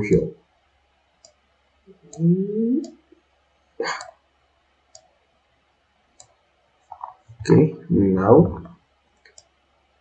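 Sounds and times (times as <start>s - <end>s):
computer mouse clicks: 1.2s - 1.4s, 4.9s - 5.1s, 6.2s - 7.2s, 9.2s - 9.6s
short vocal sound: 3.8s - 4.1s.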